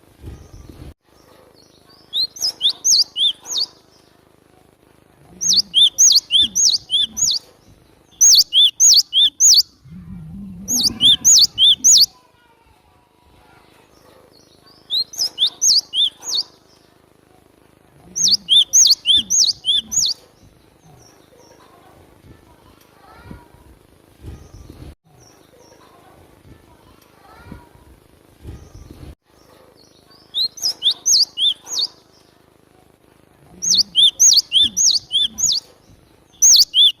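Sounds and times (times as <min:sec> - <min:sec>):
tit calling in sharp notes: 0:10.6 - 0:12.1, 0:33.6 - 0:35.6, 0:36.4 - 0:37.0.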